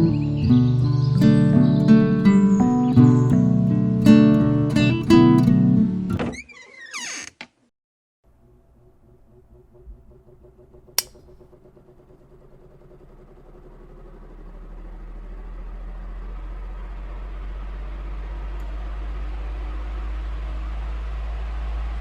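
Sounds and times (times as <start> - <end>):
vehicle engine running: 0.0 - 6.1, 8.3 - 22.0
sharp click: 11.0 - 11.5.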